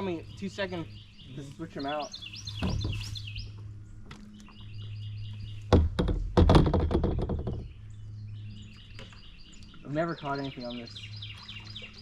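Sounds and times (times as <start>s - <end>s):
birds chirping: 0.0s - 12.0s
loud hard knocks and clatter: 5.7s - 7.7s.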